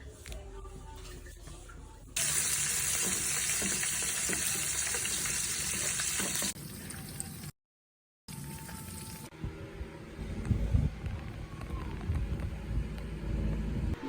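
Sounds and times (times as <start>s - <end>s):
food sizzling in hot oil: 2.2s - 6.6s.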